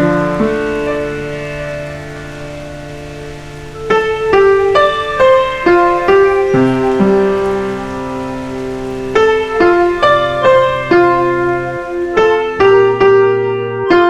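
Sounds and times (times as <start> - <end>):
slow solo piano: 0.0 - 14.0.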